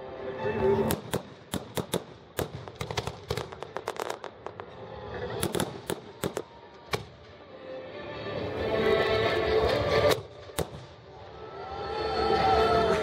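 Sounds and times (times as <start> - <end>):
fireworks bangs and cracks: 0.9 - 6.4.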